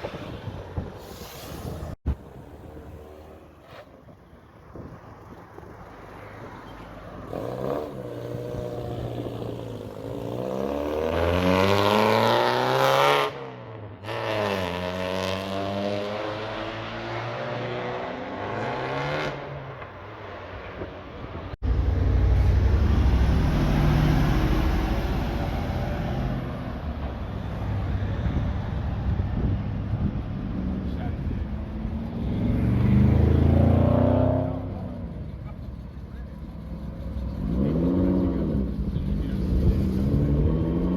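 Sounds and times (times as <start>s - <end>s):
car engine accelerating hard: 21.6s - 26.5s, 30.8s - 40.9s
deep engine rumble: 21.6s - 33.8s, 34.4s - 40.2s.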